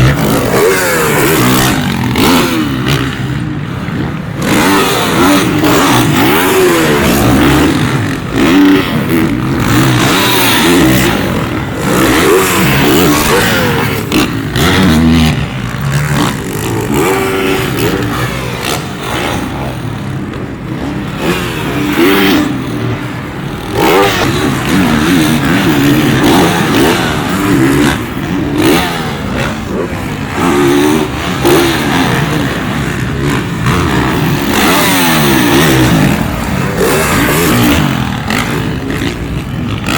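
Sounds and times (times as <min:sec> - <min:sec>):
dirt bikes revving: 0:00.0 - 0:39.9.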